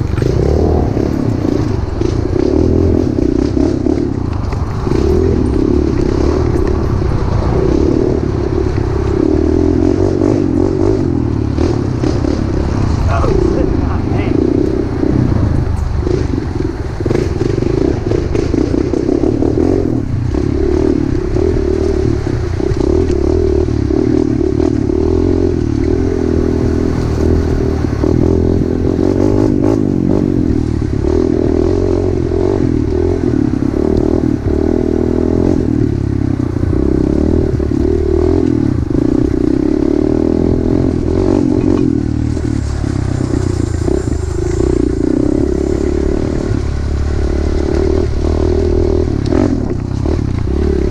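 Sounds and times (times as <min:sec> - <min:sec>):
pit bike engine running: 0:00.0 - 0:50.9.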